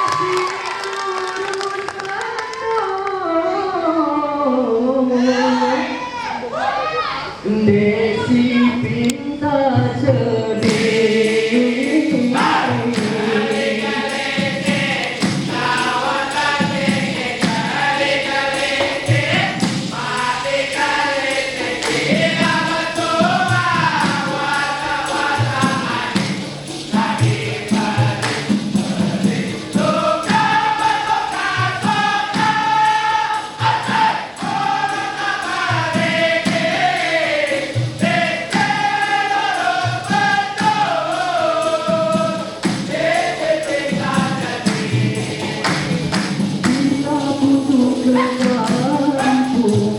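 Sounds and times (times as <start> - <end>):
vocal group singing in harmony: 0.0 - 49.9
steady percussion beat: 10.6 - 49.9.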